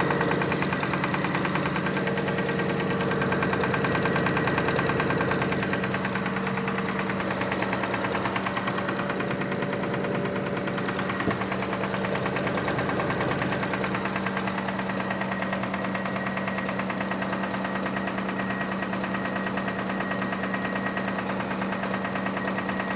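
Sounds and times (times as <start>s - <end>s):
fast regular knocking tick: 0.0s - 15.0s
car engine running: 0.0s - 22.9s.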